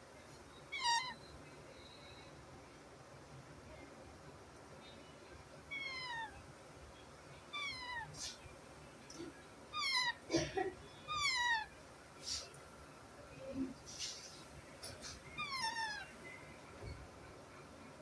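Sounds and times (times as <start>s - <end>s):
parrot meow-like calls: 0.7s - 1.2s, 7.5s - 8.2s, 9.8s - 10.2s, 11.1s - 11.7s, 15.4s - 16.2s
parrot harsh squawks: 0.8s - 1.2s, 9.8s - 10.2s.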